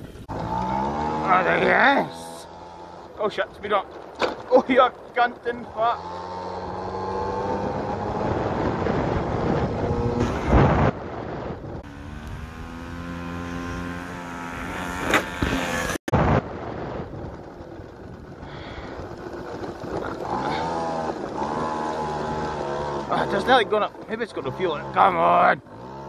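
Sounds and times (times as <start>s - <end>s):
moped engine revving: 0.0s - 26.0s.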